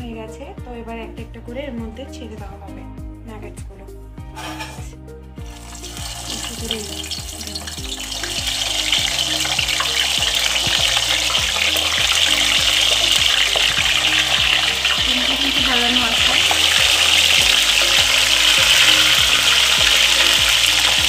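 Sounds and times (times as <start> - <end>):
chicken frying in hot oil: 5.4 - 21.0.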